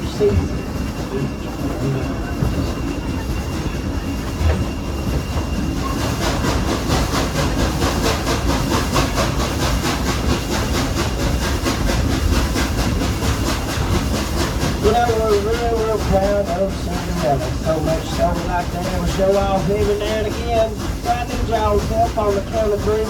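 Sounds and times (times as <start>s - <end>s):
steam locomotive beat: 0.0s - 23.0s
train rumble and rattle: 0.0s - 23.0s.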